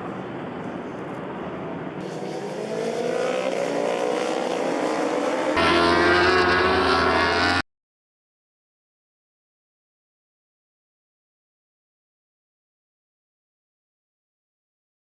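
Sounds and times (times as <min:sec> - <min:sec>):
racing motorcycle engines revving: 0:02.0 - 0:07.6.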